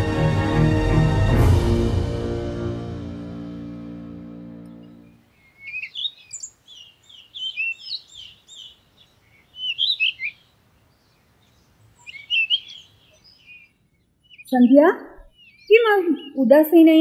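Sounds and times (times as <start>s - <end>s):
background music: 0.0s - 5.2s
songbird chirping: 4.6s - 17.0s.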